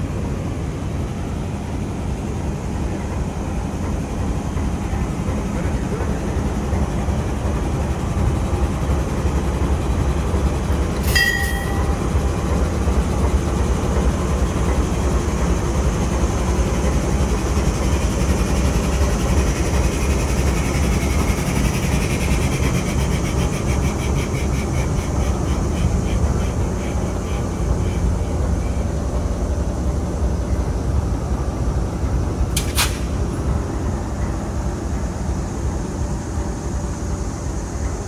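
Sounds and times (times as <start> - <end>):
diesel locomotive engine idling: 0.0 - 38.0
fast high ticking: 15.9 - 29.5.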